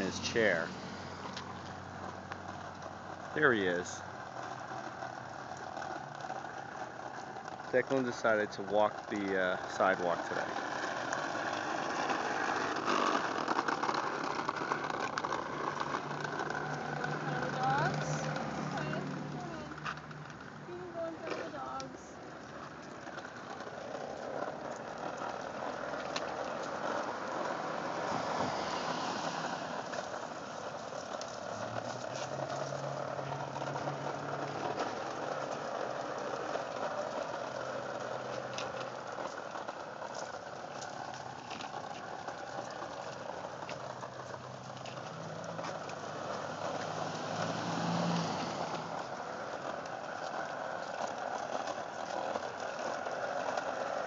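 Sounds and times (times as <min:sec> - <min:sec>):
low engine hum: 0:00.0 - 0:54.0
small wheels rolling on concrete: 0:00.0 - 0:54.0.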